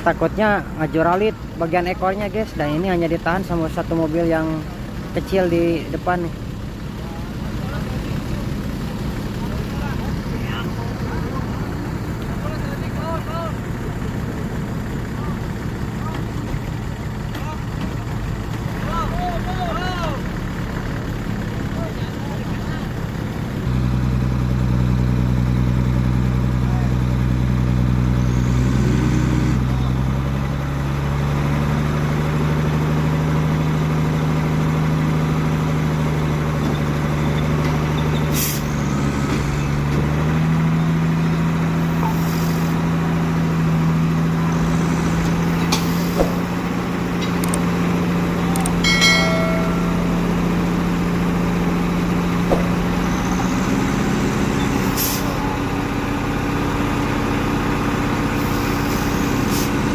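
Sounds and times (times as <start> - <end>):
diesel truck engines under load: 0.0 - 59.9
short air hisses: 38.3 - 38.7.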